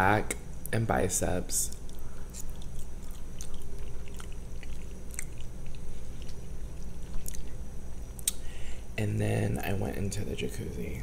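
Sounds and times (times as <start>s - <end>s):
person chewing food: 1.6s - 8.4s
wet mouth clicks and smacks: 8.2s - 8.4s.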